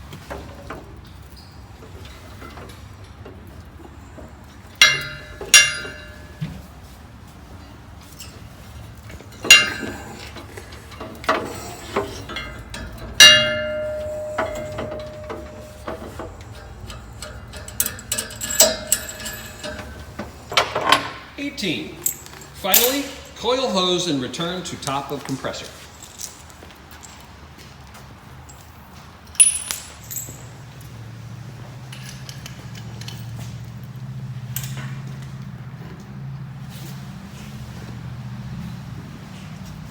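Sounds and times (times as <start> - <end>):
steady low hum: 3.0 - 23.4
loud metal clanks: 4.2 - 6.7, 9.3 - 21.4.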